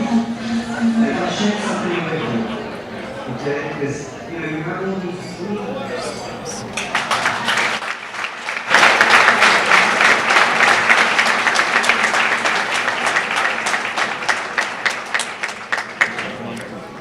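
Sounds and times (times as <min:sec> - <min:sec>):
audience applauding: 0:06.7 - 0:16.6.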